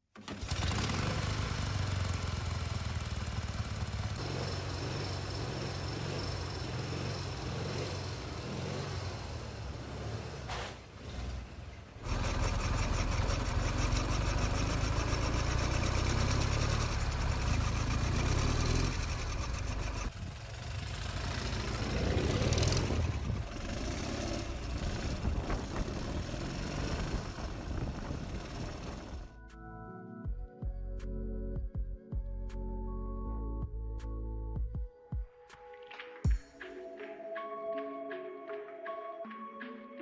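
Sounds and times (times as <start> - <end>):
motorcycle engine revving: 0.2 - 29.4.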